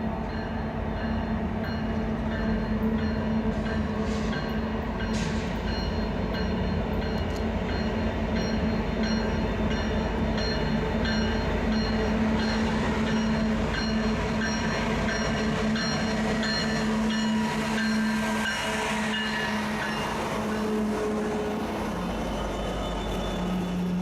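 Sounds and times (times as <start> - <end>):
freight train cars rolling: 0.0 - 24.0
high-pitched wheel squeals: 22.0 - 24.0.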